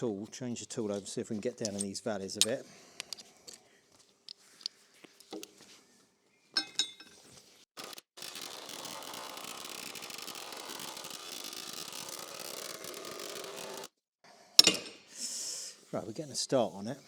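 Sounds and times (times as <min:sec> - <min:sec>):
tools clinking: 0:01.6 - 0:03.6, 0:06.6 - 0:07.2.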